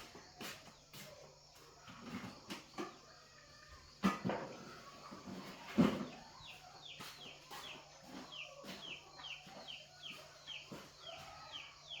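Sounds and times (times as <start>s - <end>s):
bird chirping: 5.0s - 12.0s.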